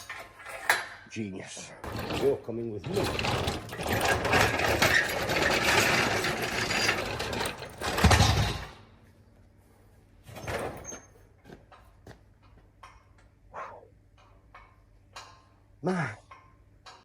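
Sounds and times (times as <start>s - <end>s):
mechanical rattling: 1.8s - 8.8s.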